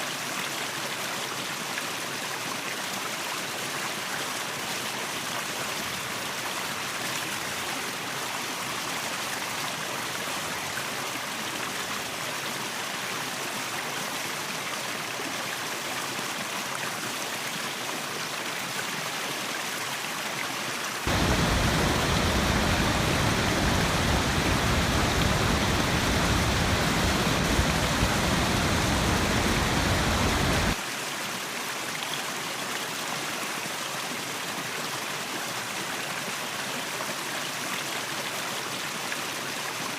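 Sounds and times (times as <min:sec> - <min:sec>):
deep rumble: 0:21.1 - 0:30.8
waterfall rushing: 0:21.1 - 0:30.8.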